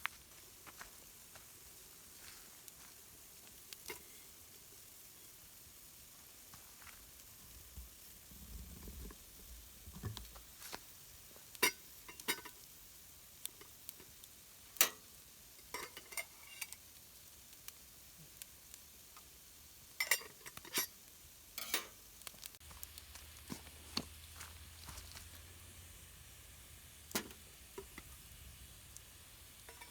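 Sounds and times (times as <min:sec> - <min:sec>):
faint steady hiss: 0:00.0 - 0:29.9
utensils clinking on metal pot: 0:11.6 - 0:12.6, 0:15.6 - 0:16.8, 0:20.0 - 0:21.0, 0:21.6 - 0:22.0, 0:29.7 - 0:29.9.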